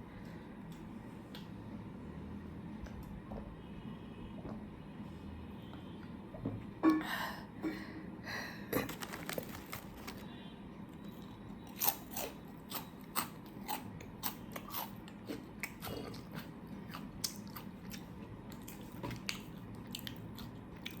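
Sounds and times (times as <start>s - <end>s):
person biting and chewing: 8.8s - 10.2s, 11.6s - 21.0s.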